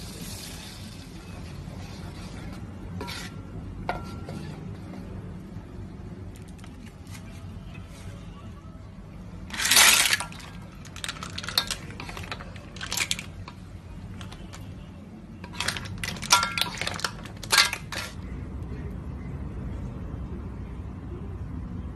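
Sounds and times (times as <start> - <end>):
clam shells clattering in a pan: 9.5 - 14.6, 15.5 - 18.2.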